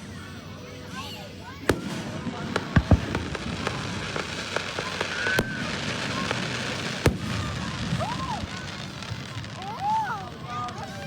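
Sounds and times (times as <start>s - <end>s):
fireworks crackling pops: 0.9s - 11.0s
loud firework bangs: 1.6s - 10.0s.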